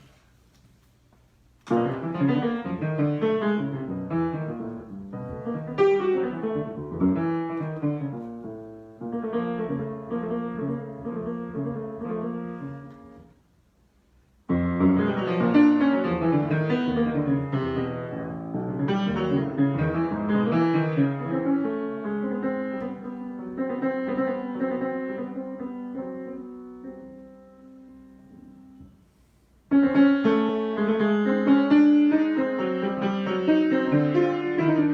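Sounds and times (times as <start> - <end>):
solo piano: 1.6 - 34.9.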